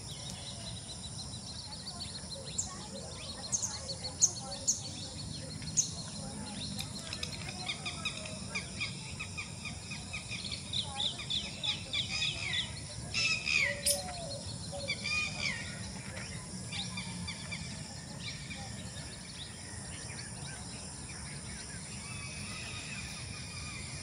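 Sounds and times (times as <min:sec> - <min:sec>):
birds whistling downward notes: 0:10.4 - 0:15.9.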